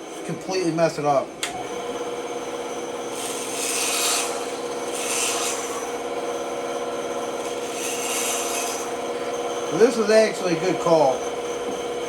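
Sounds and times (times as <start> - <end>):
machine hum: 0.0 - 12.0
wood rasping strokes: 3.0 - 11.8.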